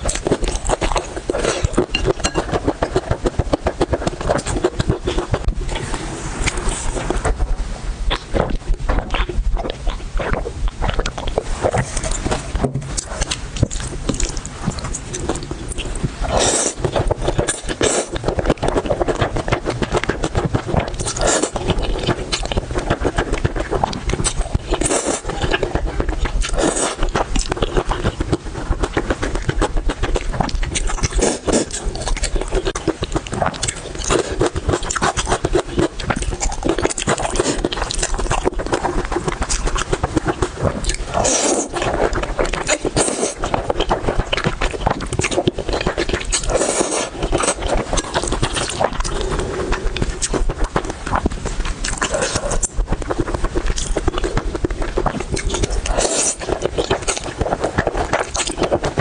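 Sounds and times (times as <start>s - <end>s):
close chewing with wet clicks: 0.0s - 5.6s, 8.1s - 59.0s.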